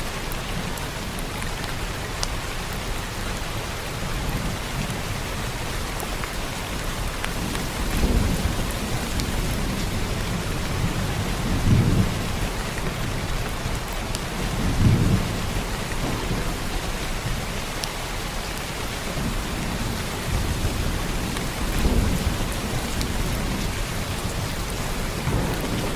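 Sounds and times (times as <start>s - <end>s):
heavy rain falling: 0.0s - 25.9s
thunder rumbles: 4.0s - 25.9s.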